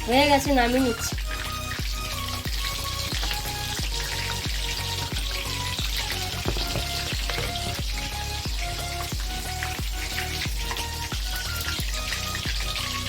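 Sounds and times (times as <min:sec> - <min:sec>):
background music with steady beat: 0:00.0 - 0:13.0
food deep-frying in hot oil: 0:00.0 - 0:13.0.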